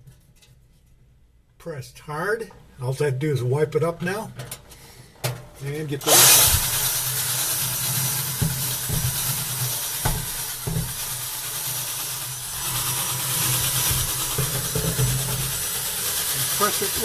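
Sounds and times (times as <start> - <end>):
brush scrubbing hiss: 6.0 - 17.0
drill motor hum: 6.0 - 17.0.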